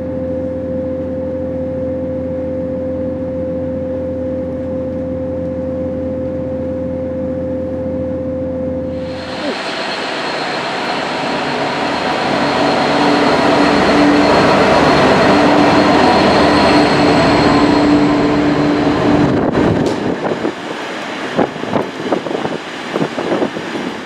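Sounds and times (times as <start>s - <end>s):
steady hum: 8.8s - 24.0s
train wheel and rail noise: 8.9s - 24.0s.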